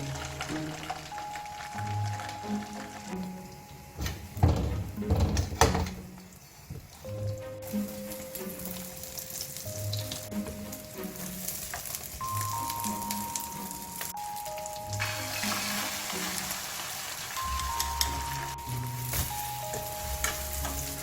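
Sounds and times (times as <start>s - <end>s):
food sizzling in a pan: 6.3s - 21.0s.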